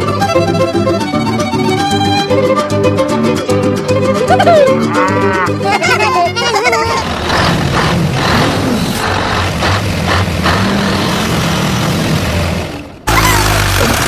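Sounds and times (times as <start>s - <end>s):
heavy truck engine running: 5.5s - 14.0s.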